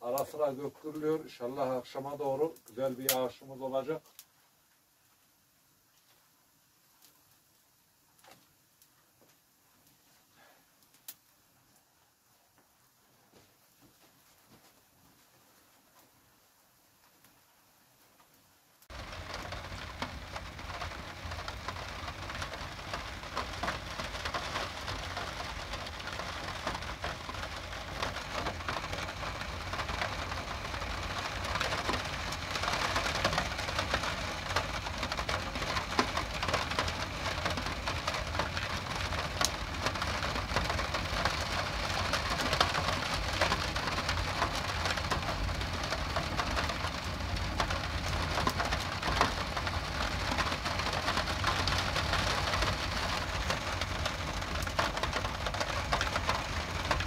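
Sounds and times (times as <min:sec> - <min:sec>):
steady rain patter: 0:00.0 - 0:57.0
low steady rumble: 0:18.9 - 0:57.0.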